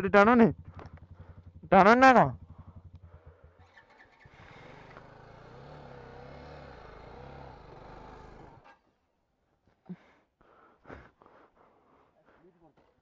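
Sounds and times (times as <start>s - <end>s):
motorcycle engine straining: 0.0s - 8.8s.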